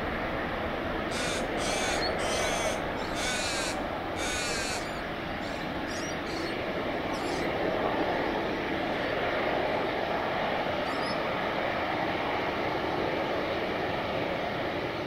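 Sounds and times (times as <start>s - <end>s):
aircraft engine rumble: 0.0s - 15.0s
harsh bird calls: 1.1s - 7.6s, 10.8s - 11.3s.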